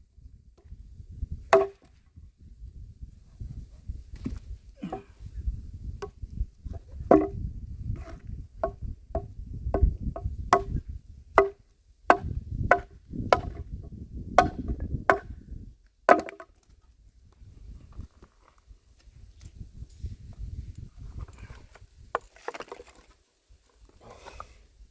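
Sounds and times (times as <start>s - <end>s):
axe chopping wood: 1.5s - 2.0s, 7.1s - 7.4s, 8.0s - 13.7s, 14.4s - 15.4s, 16.1s - 16.5s.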